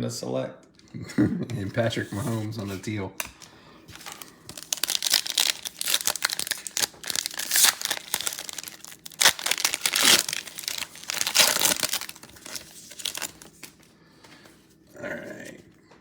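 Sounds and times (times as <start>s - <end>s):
plastic wrapper tearing and crinkling: 3.2s - 13.9s.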